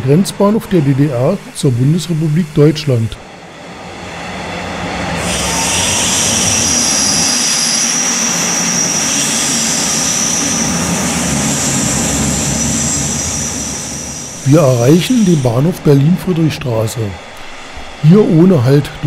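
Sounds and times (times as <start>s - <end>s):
high whine: 0.0s - 19.0s
train rumbling on track: 0.0s - 19.0s.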